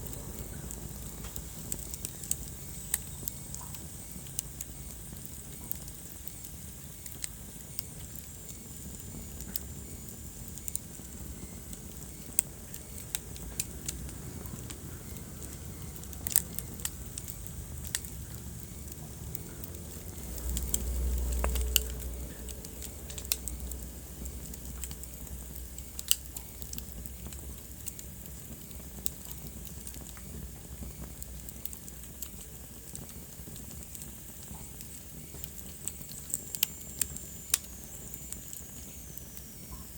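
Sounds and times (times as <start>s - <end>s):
low fire rumble: 0.0s - 39.9s
wood fire crackling and popping: 0.0s - 39.9s.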